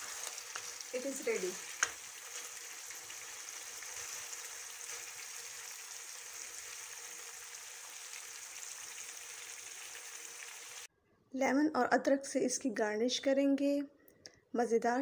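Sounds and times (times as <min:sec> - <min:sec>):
meat sizzling in oil: 0:00.0 - 0:10.9.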